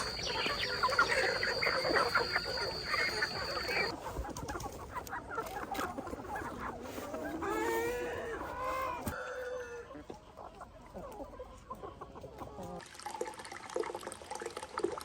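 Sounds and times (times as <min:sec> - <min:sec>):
long rising chicken call: 0:00.0 - 0:03.9
chickens clucking: 0:00.0 - 0:12.8.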